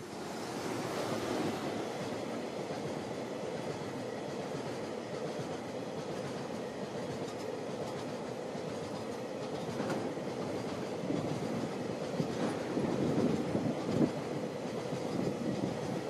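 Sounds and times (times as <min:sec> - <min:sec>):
train wheels rumbling on rails: 0:00.0 - 0:16.0
clickety-clack over rail joints: 0:00.6 - 0:16.0.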